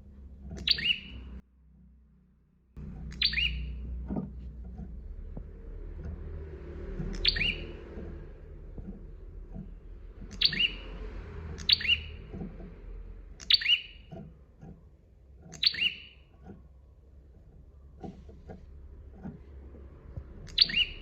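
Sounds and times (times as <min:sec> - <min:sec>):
low rumble: 0:00.0 - 0:14.1
bird chirping: 0:00.4 - 0:01.4, 0:02.8 - 0:05.0, 0:05.6 - 0:14.8, 0:15.4 - 0:16.7, 0:20.1 - 0:21.0
soft knocks: 0:02.8 - 0:10.4.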